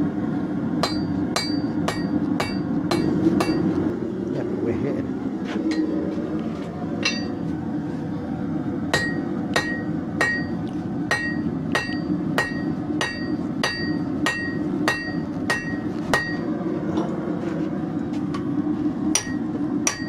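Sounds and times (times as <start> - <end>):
steady low noise: 0.0 - 19.9
hammer striking steel on anvil: 0.8 - 3.8, 5.7 - 6.0, 7.0 - 7.4, 8.9 - 16.5, 19.1 - 20.0.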